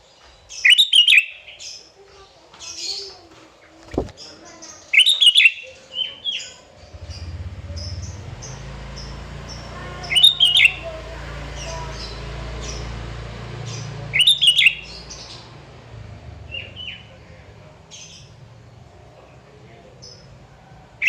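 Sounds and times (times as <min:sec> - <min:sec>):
bird whistled phrases: 0:00.6 - 0:01.5, 0:04.9 - 0:06.5, 0:10.0 - 0:10.8, 0:14.1 - 0:15.1
soft bird chirps: 0:03.8 - 0:15.7.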